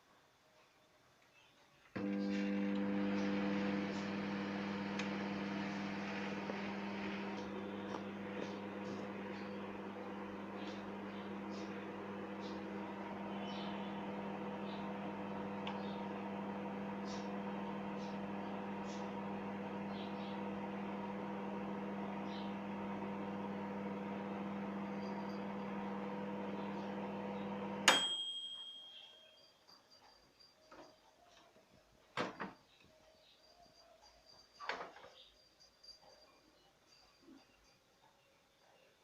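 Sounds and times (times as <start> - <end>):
microwave oven humming: 1.9 - 28.8
short high ringing tone: 27.9 - 29.9.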